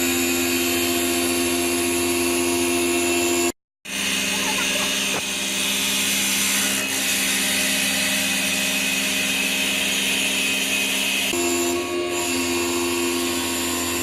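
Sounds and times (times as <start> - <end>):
cutting tool shaving wood: 3.9 - 14.0.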